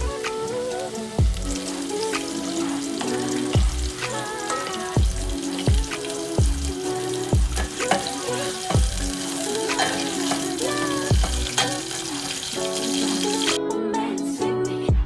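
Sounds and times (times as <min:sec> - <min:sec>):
food sizzling in a pan: 0:00.0 - 0:13.6
music with deep bass beat: 0:01.2 - 0:04.4, 0:05.0 - 0:08.0, 0:08.6 - 0:09.8, 0:11.0 - 0:11.6.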